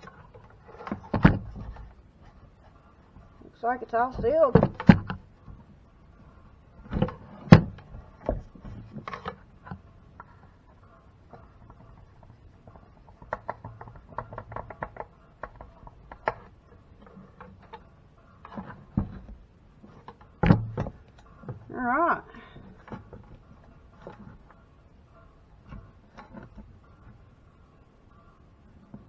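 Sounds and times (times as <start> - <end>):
objects knocking when handled: 11.3 - 17.8.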